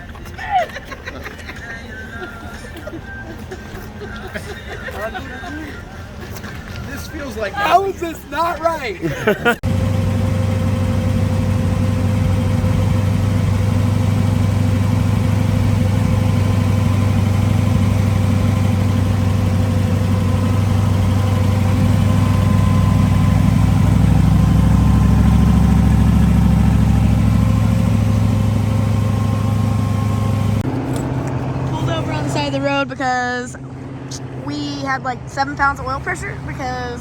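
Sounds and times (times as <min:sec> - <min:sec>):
road noise: 0:00.0 - 0:37.0
car engine droning: 0:09.0 - 0:37.0.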